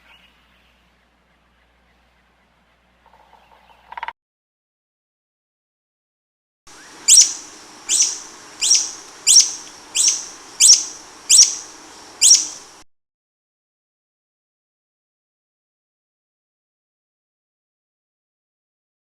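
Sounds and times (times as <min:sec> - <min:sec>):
faint outdoor hiss: 0:00.0 - 0:04.1, 0:06.7 - 0:12.8
bird calling: 0:06.7 - 0:12.8.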